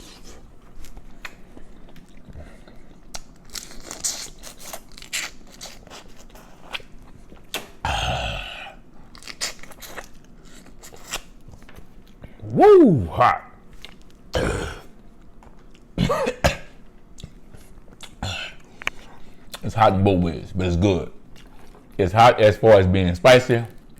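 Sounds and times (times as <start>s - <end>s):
chewing seafood: 0.0s - 7.8s, 21.2s - 22.0s.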